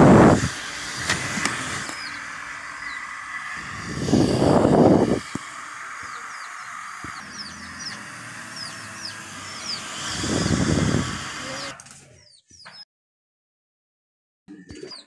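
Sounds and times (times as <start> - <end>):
low rumbling noise: 0.0 - 11.8
small birds chirping: 0.7 - 12.9, 14.5 - 15.0.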